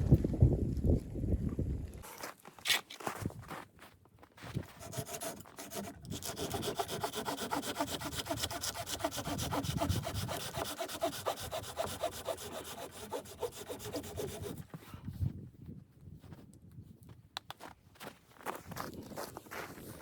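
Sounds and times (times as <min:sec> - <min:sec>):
hand saw cutting wood: 0:04.6 - 0:14.8.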